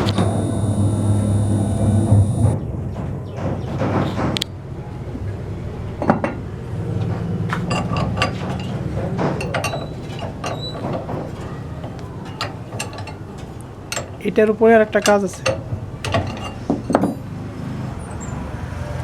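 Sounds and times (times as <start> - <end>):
low steady hum: 0.0 - 2.6
metal tools clinking: 9.4 - 17.3.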